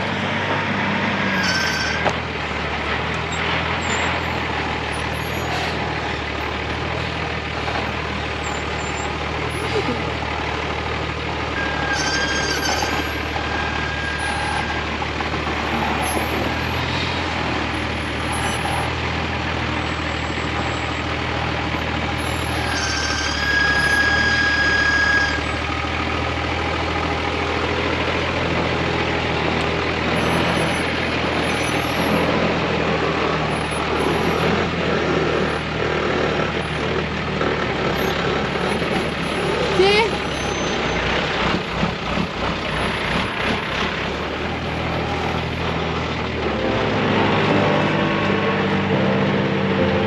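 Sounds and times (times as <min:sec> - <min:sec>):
truck engine running: 0:00.0 - 0:50.0
high squeal: 0:01.0 - 0:02.2, 0:03.3 - 0:06.1, 0:11.6 - 0:19.0, 0:21.8 - 0:25.7, 0:30.0 - 0:32.8, 0:33.4 - 0:34.7, 0:38.0 - 0:41.1.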